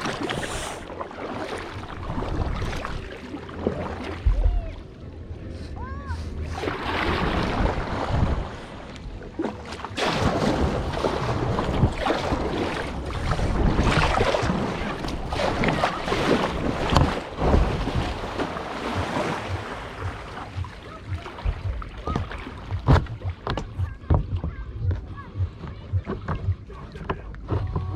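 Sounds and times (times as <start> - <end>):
kayak paddle strokes splashing: 0.0 - 5.0, 6.2 - 27.9
water washing along hull: 0.0 - 27.9
wind buffeting microphone: 5.4 - 9.3, 10.2 - 27.9.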